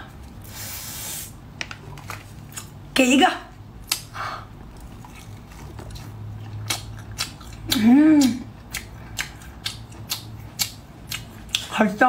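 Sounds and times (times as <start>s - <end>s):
wet chewing smacks: 3.8s - 11.7s
person humming mmm: 7.6s - 8.5s.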